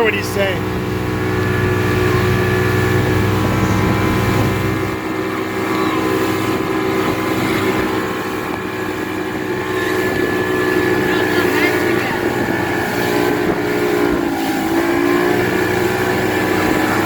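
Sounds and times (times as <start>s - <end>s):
motorboat engine running: 0.0s - 17.0s.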